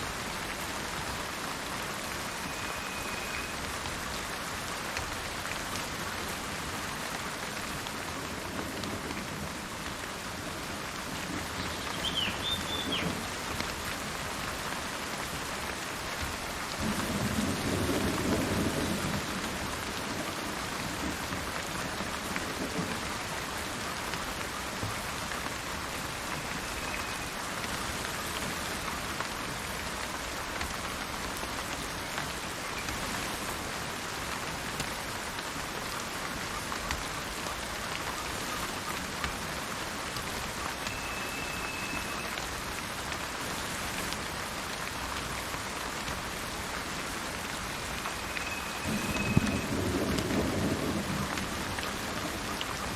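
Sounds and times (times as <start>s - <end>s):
heavy rain falling: 0.0s - 52.9s
thunder rumbling: 48.8s - 52.5s.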